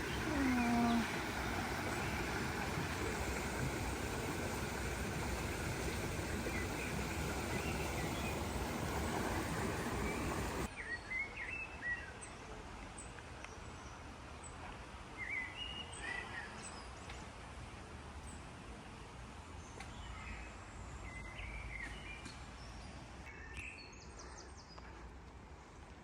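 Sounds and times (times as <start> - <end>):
birds chirping: 0.0 - 10.7
steady rushing noise: 1.1 - 10.7.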